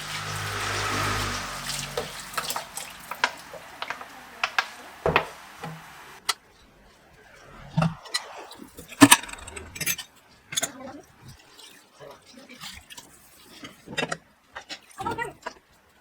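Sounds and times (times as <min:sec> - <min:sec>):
tap water running: 0:00.0 - 0:06.4.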